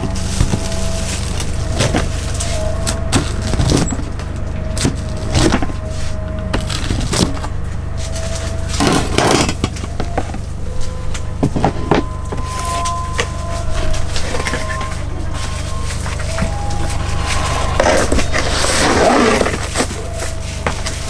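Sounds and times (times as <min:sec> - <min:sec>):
pizza crust crackling: 0:00.0 - 0:09.8
steady low hum: 0:00.0 - 0:21.0.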